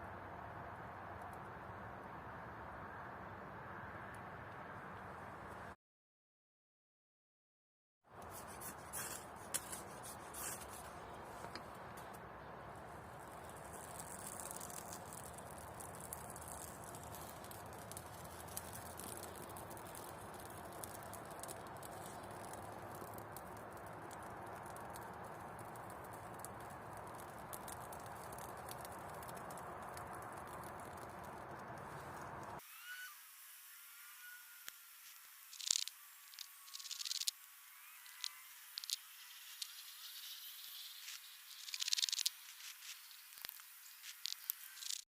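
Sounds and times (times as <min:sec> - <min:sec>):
campfire crackling and popping: 0:08.2 - 0:32.6
fire hissing: 0:08.2 - 0:32.6.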